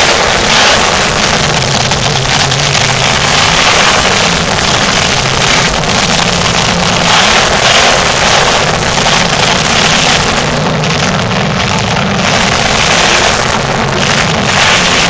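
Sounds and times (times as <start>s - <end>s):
monster truck engine roaring: 0.0s - 15.0s.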